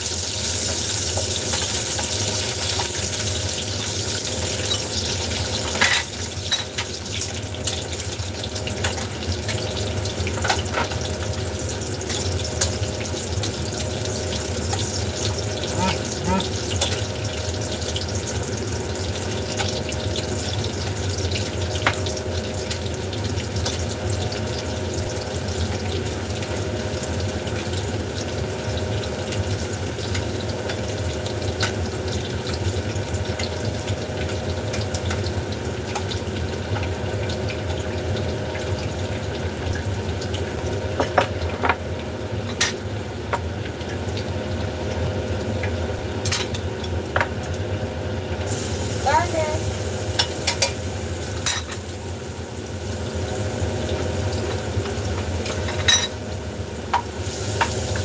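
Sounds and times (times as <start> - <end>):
food sizzling in a wok: 0.0 - 58.0
extractor fan humming: 11.0 - 34.3.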